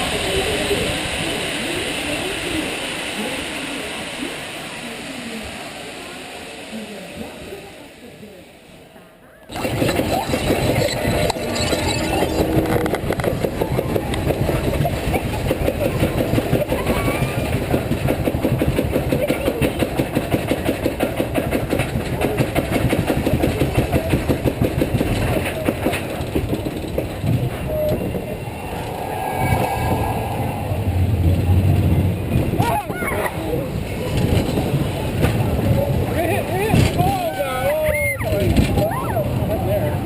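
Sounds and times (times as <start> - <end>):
rapid knocking clatter: 9.5 - 27.6
vehicle low rumble: 26.0 - 36.2.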